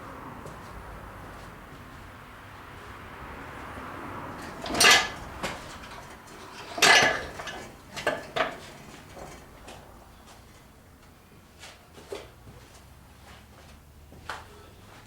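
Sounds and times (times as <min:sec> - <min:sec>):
metal parts clanking: 0:04.6 - 0:09.4.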